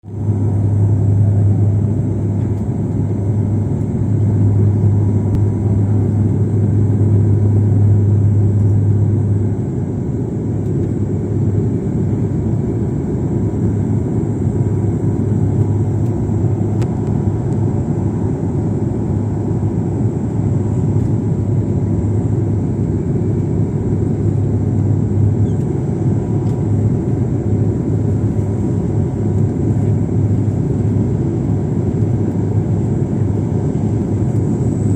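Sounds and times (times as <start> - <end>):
low hum: 0.0 - 16.9
airliner engine drone: 0.0 - 34.9
cabin airflow noise: 0.1 - 16.8.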